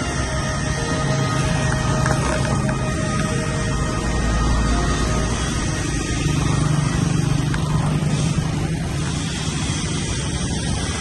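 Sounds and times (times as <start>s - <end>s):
motorbike engine humming: 0.0s - 11.0s
traffic and road noise: 0.0s - 11.0s.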